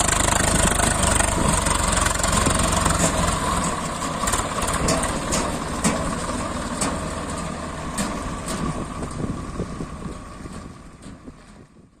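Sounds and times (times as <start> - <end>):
tractor diesel engine running: 0.0 - 12.0
clanks: 2.0 - 9.2.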